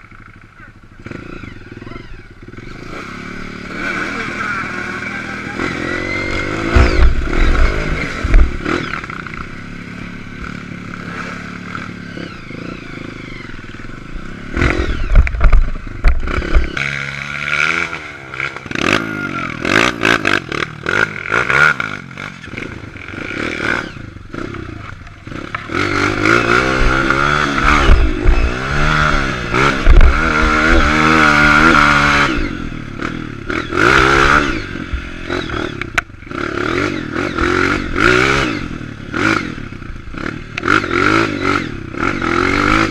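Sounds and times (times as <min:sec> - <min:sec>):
dirt bike engine revving: 0:00.0 - 0:42.9
heavy low rumbling thuds: 0:06.4 - 0:09.6, 0:15.0 - 0:16.7, 0:26.7 - 0:30.9.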